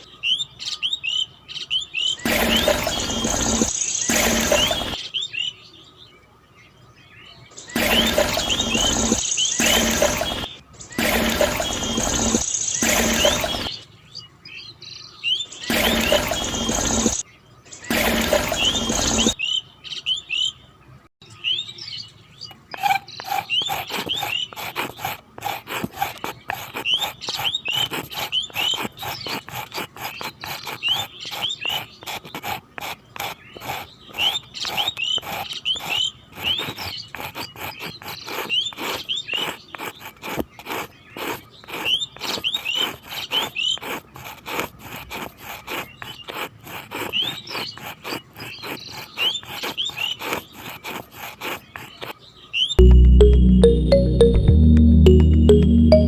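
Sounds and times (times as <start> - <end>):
small birds chirping: 0.0 - 54.4
scratchy clicking: 22.8 - 52.2.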